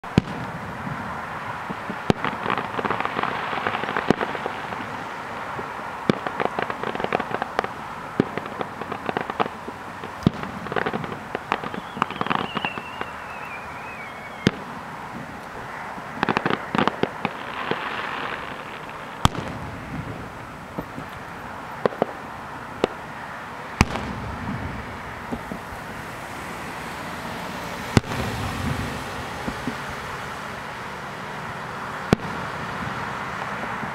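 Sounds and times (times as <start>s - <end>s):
firework bangs: 0.0s - 33.9s
firework crackling: 0.0s - 33.9s
falling firework whistle: 1.7s - 14.8s.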